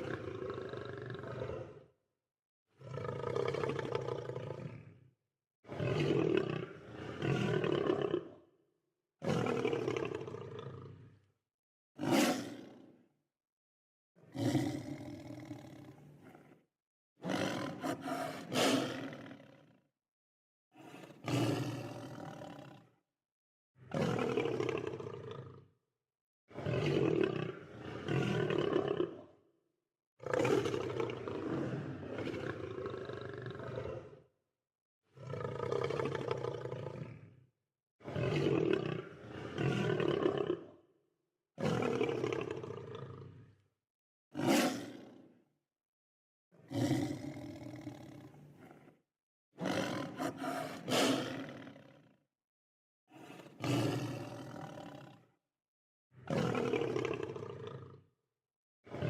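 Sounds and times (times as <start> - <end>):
lion roaring: 0.0 - 1.8, 2.8 - 5.0, 5.8 - 8.4, 14.3 - 16.6, 17.2 - 19.6, 30.2 - 34.2, 35.2 - 37.3, 44.4 - 45.1, 46.7 - 49.0, 49.6 - 52.0, 53.2 - 55.2, 56.3 - 58.0.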